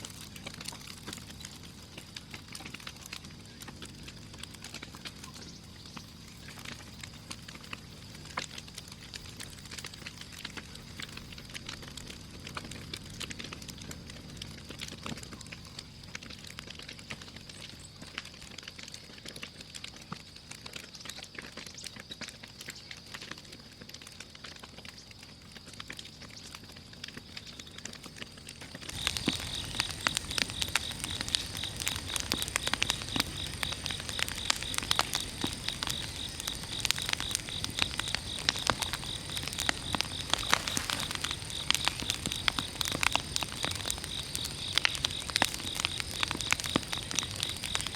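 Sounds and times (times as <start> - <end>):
bonfire crackling and popping: 0.0 - 47.9
steady high insect drone: 28.9 - 47.9
fast-pulsing insect trill: 29.0 - 47.9.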